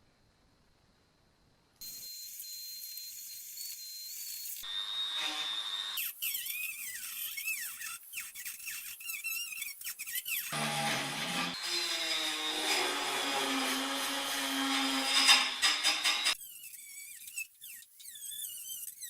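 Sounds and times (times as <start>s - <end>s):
power tool whining: 1.8s - 8.0s, 10.1s - 19.0s.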